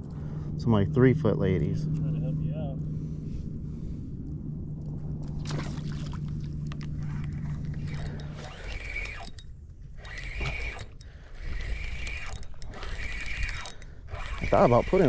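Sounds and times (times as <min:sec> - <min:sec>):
low hum: 0:00.0 - 0:15.0
fishing reel cranking: 0:06.5 - 0:15.0.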